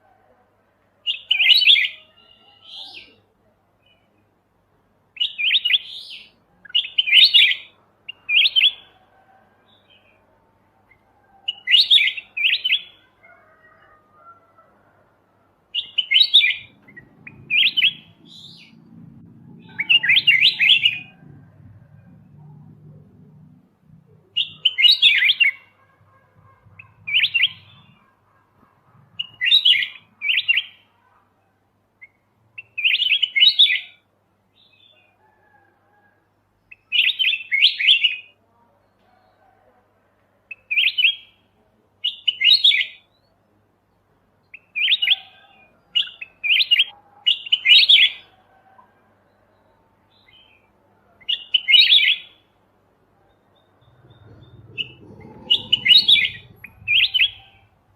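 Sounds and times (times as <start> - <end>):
bird chirping bubbly phrases: 53.7 - 57.8.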